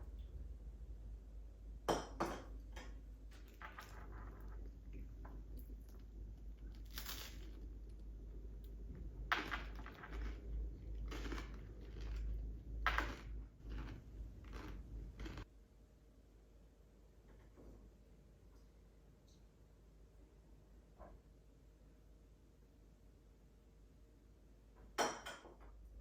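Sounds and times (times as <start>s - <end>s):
crunchy food being chewed: 3.3s - 15.5s.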